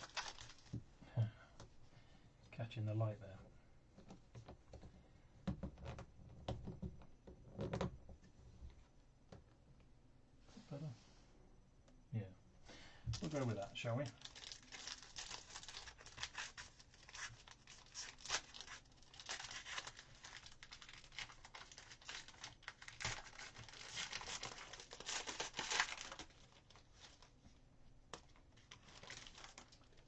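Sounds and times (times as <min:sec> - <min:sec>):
wrapper tearing and crinkling: 0:00.0 - 0:00.7, 0:14.0 - 0:27.3, 0:28.1 - 0:30.0.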